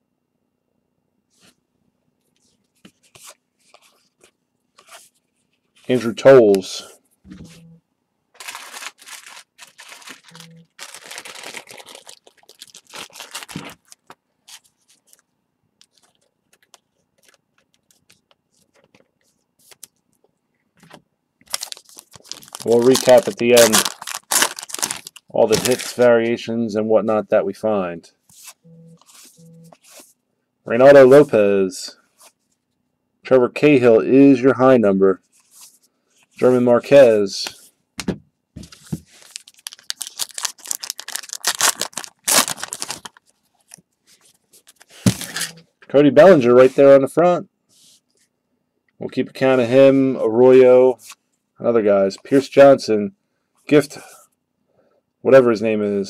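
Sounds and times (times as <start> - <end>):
cards being flipped through: 8.4 - 15.2, 15.8 - 20.0, 38.0 - 45.6.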